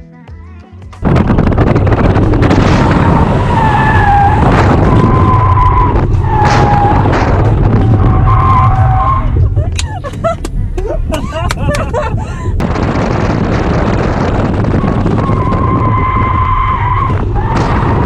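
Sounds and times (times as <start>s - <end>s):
car engine running hard: 1.0s - 18.0s
tyre squeals: 3.1s - 9.5s.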